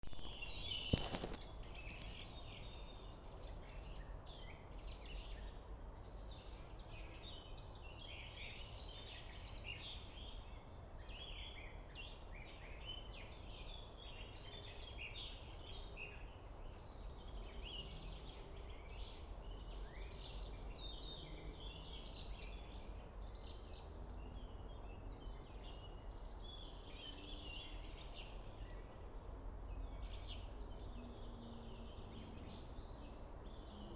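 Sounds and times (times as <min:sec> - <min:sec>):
songbirds singing and calling: 0:00.1 - 0:33.9.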